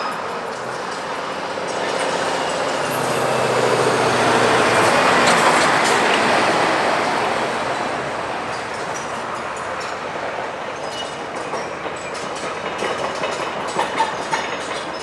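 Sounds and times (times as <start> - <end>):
heavy vehicle driving past: 1.1 - 8.6.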